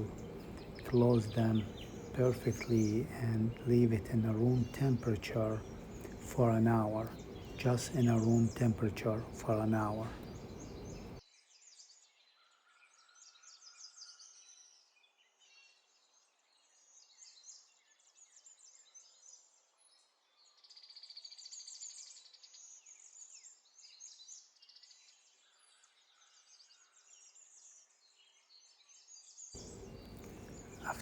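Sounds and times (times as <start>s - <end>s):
faint bird chirps: 0.0s - 11.2s, 29.6s - 31.0s.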